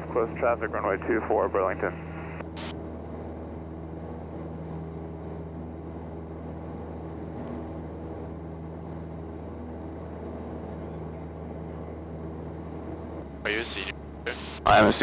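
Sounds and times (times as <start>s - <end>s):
light aircraft engine and propeller droning: 0.0s - 15.0s.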